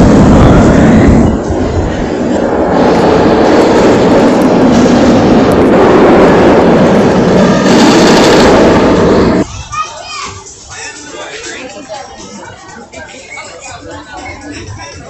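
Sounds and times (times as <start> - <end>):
wind buffeting microphone: 0.0 - 9.7
roller coaster rumbling on track: 0.0 - 15.0.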